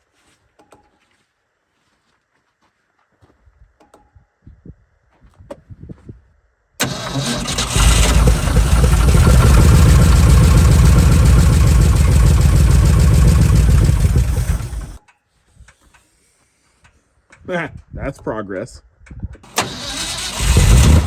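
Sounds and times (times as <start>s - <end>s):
engine cranking and running: 6.8s - 15.0s, 19.4s - 21.0s.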